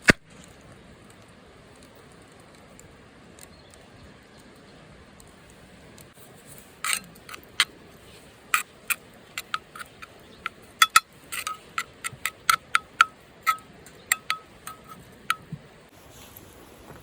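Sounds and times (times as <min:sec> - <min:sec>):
light metallic clinks: 0:09.4 - 0:15.5.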